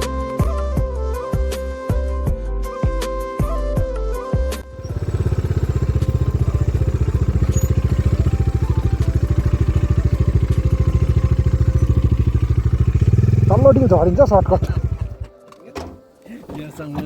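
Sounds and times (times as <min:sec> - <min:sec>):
background music: 0:00.0 - 0:17.0
motorcycle engine idling: 0:04.7 - 0:15.4.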